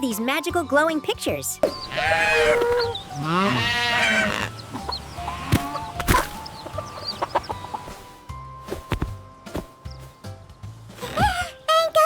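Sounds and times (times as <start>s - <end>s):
light background music: 0.0s - 12.0s
cartoon chickens clucking: 1.6s - 8.0s.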